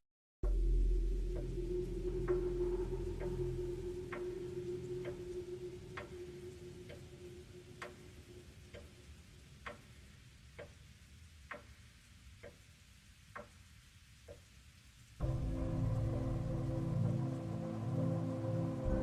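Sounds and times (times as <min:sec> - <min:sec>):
low held tone: 0:00.4 - 0:08.5
faint clock ticking: 0:00.4 - 0:17.9.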